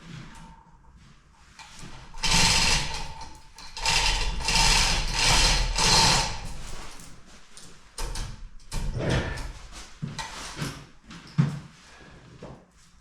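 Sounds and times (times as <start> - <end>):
metal mechanism rasping and clicking: 2.1 - 7.2.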